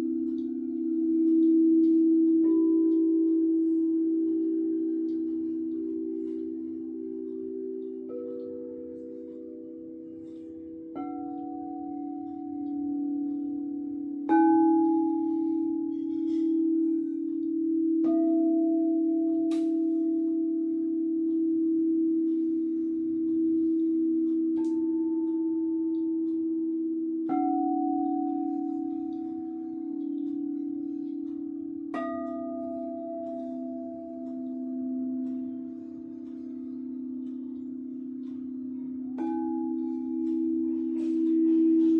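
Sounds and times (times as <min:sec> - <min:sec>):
low singing bowls droning: 0:00.0 - 0:41.9.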